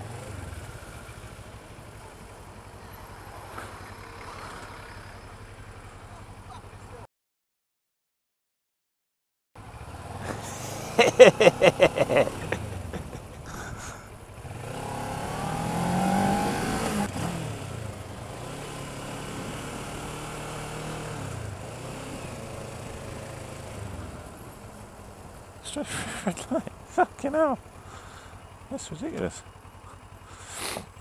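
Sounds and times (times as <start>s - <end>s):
motorcycle engine and traffic noise: 0.0s - 7.1s, 9.6s - 31.0s
vehicle passing: 2.7s - 6.1s.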